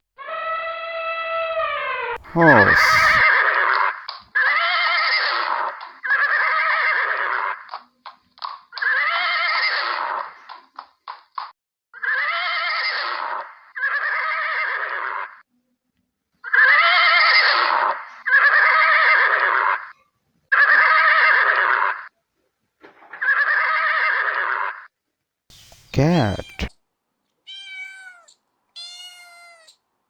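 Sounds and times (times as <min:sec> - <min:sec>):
horse neighing: 0:02.2 - 0:03.2
short sharp sounds: 0:25.6 - 0:26.7.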